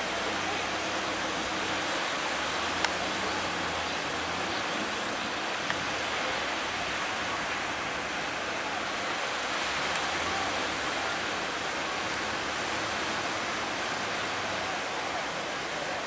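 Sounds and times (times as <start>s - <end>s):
sea waves breaking: 0.0s - 16.0s
faint tick: 5.6s - 5.8s, 9.9s - 10.1s.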